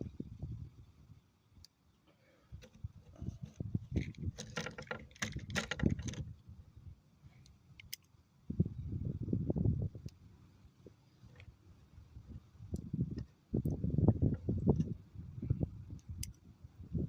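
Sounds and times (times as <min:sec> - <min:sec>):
metallic clicks of cartridges: 0:07.4 - 0:08.1, 0:15.9 - 0:16.4.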